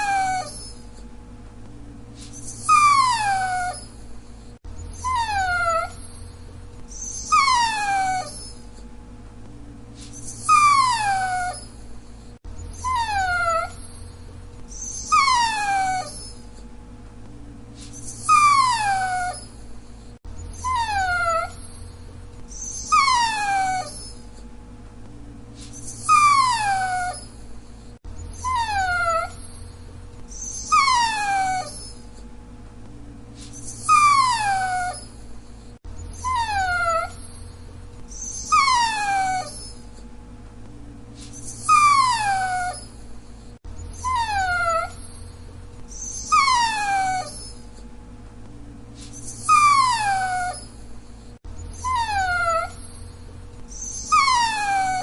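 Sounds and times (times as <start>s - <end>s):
dog whining: 0.0s - 1.1s, 2.2s - 8.9s, 10.0s - 16.7s, 17.8s - 24.5s, 25.6s - 32.3s, 33.4s - 40.1s, 41.2s - 47.9s, 49.0s - 55.0s
faint hum: 0.0s - 55.0s.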